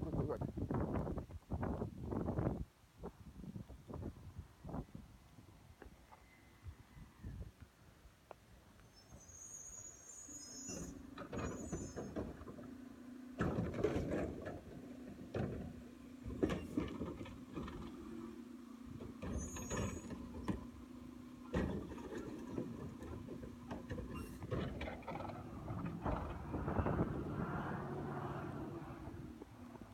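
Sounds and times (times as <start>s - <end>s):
garbage truck mechanical hum: 9.3s - 29.9s.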